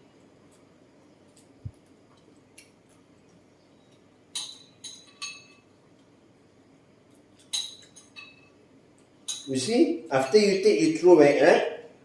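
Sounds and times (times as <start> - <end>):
tableware clinking: 4.3 - 5.7, 7.4 - 8.6, 9.2 - 9.6.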